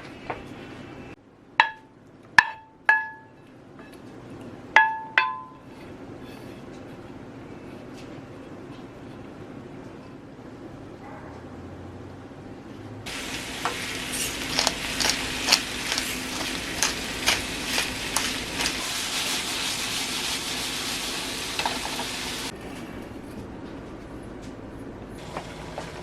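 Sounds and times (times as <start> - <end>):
food sizzling in frying pan: 13.1 - 22.5
oil popping and crackling: 13.1 - 22.5.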